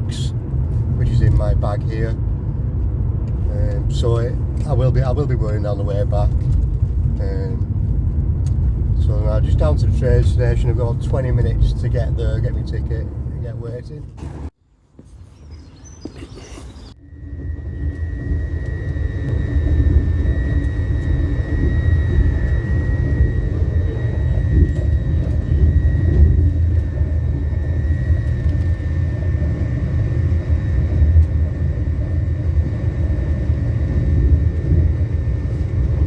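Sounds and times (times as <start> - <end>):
train rumbling: 0.0 - 14.6, 16.0 - 36.0
thin high whine: 16.3 - 36.0.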